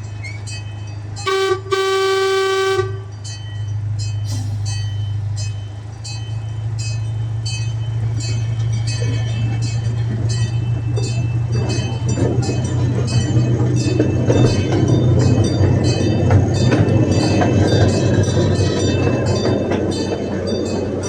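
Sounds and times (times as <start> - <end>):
track clicking: 0.0 - 21.0
train running hum: 0.0 - 21.0
train horn blasts: 1.2 - 3.2.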